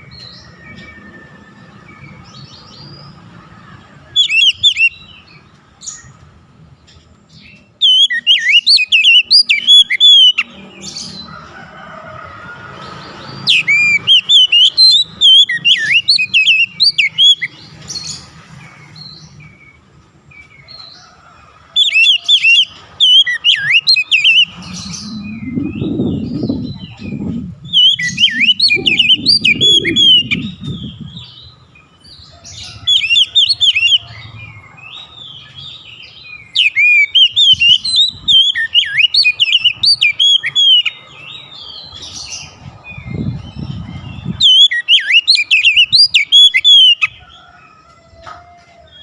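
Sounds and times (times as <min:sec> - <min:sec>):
magpie-robin singing: 0:04.1 - 0:06.2, 0:06.9 - 0:11.3, 0:13.2 - 0:18.3, 0:21.8 - 0:47.2
low rumbling noise: 0:23.8 - 0:31.8.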